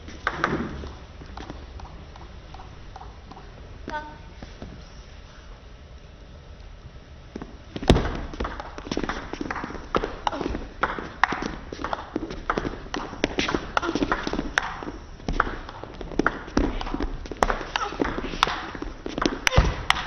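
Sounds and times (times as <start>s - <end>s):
table tennis ball clicking: 0.2s - 3.5s, 8.0s - 20.0s.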